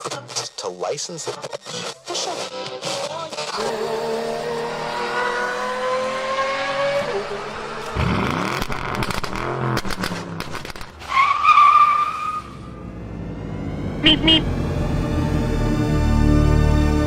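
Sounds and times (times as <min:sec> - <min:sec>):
car engine revving: 0:02.3 - 0:17.0
car speeding past: 0:03.5 - 0:10.5
high-pitched tone: 0:13.4 - 0:14.8.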